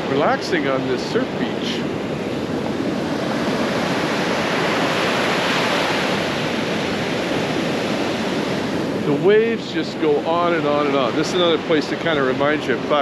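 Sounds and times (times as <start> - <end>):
waves breaking on beach: 0.0 - 13.0.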